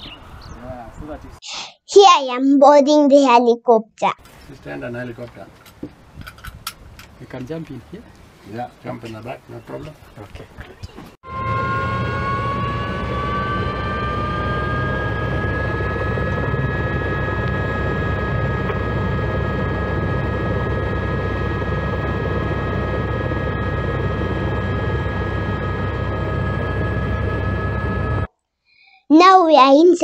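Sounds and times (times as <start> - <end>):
helicopter rotor and turbine roar: 4.2 - 9.9, 11.2 - 28.3
high turbine whine: 11.2 - 28.3.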